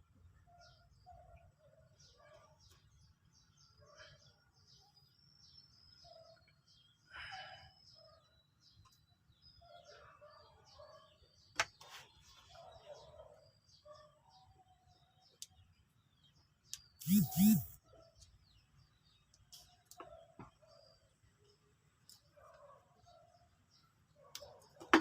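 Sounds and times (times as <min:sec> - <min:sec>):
faint birds chirping: 0:00.0 - 0:24.9.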